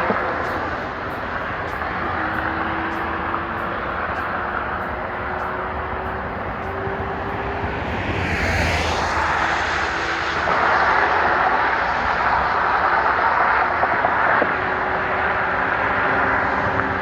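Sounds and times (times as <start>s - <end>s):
car engine at full throttle: 0.0s - 17.0s.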